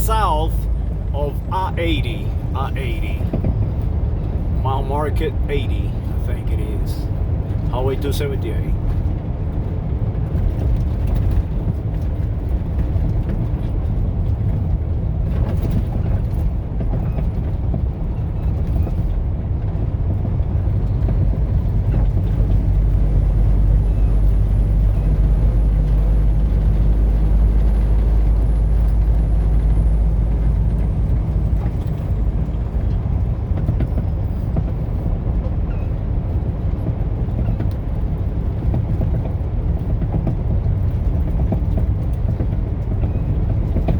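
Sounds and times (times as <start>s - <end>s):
vehicle driving at highway speed: 0.0s - 43.9s.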